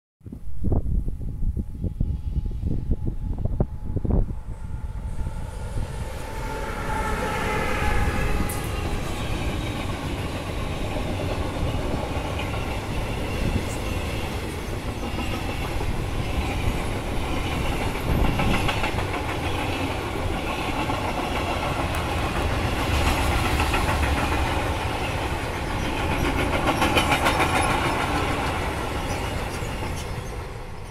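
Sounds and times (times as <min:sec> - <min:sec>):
electric locomotive whine: 0:00.6 - 0:30.9
freight wagons rumbling on rails: 0:03.7 - 0:30.9
wheels clattering over rail joints: 0:08.5 - 0:30.9.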